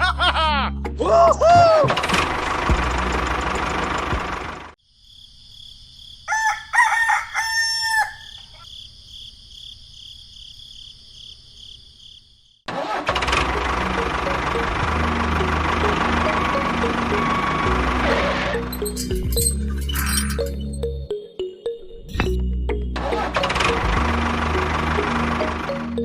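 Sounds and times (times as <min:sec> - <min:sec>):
rooster crowing: 0:06.2 - 0:08.7.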